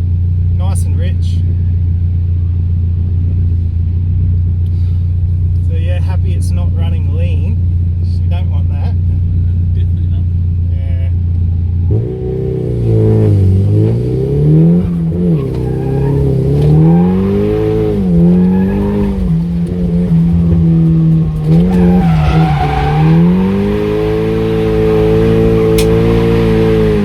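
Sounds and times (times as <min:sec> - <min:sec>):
car engine revving: 0:00.0 - 0:27.0
tyres squealing: 0:14.8 - 0:26.9.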